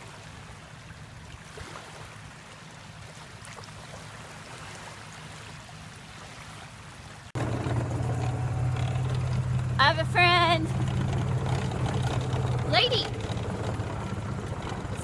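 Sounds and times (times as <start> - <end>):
lake water lapping: 0.0 - 15.0
louder low hum: 7.4 - 15.0.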